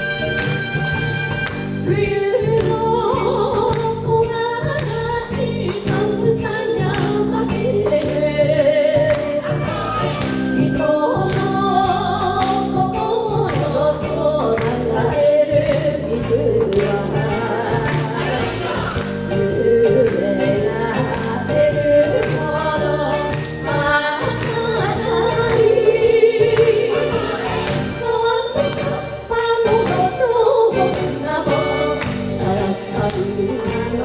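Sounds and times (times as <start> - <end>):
band with horns: 0.0 - 2.1, 9.2 - 10.9, 17.2 - 19.7, 26.0 - 32.8
women singing in duet: 1.8 - 34.0.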